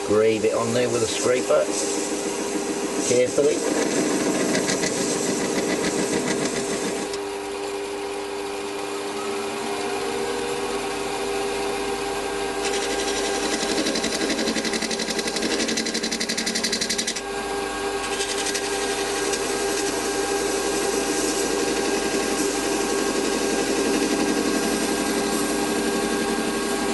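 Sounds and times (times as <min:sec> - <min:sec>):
metal lathe running: 0:00.0 - 0:26.9
scraper tool chattering: 0:12.6 - 0:17.2.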